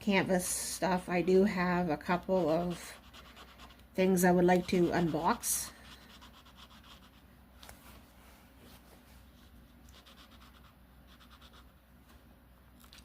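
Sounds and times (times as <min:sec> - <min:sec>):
marker scratching on paper: 0:02.4 - 0:07.2, 0:09.9 - 0:11.7.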